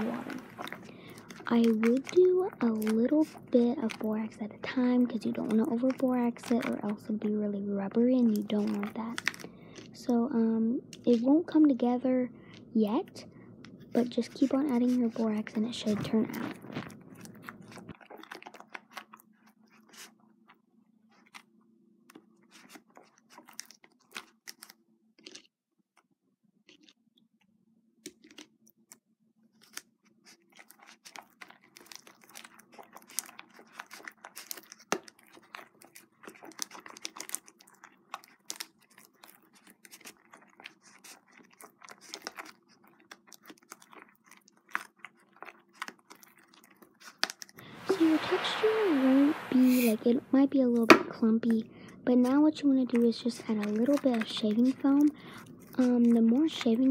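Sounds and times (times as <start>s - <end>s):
slime sticky crackles and clicks: 0.1s - 7.4s, 8.1s - 10.2s, 10.9s - 11.8s, 12.9s - 19.2s, 22.1s - 25.5s, 29.6s - 47.6s, 50.7s - 56.9s.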